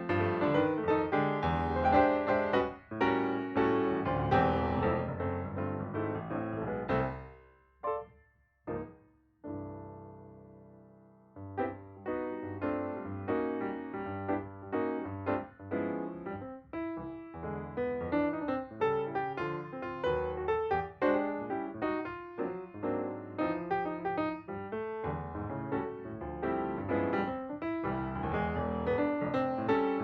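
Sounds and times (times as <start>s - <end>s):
background piano music: 0.0s - 30.0s.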